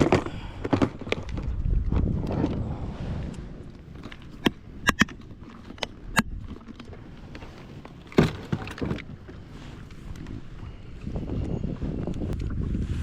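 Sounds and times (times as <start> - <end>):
sharp clicks and knocks: 4.0 - 6.9.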